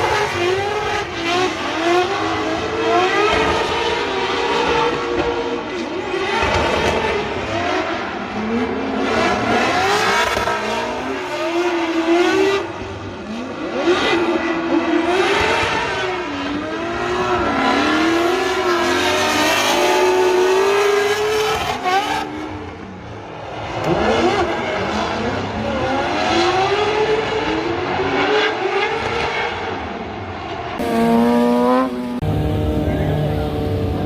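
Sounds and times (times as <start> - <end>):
car engine revving hard: 30.8 - 34.0.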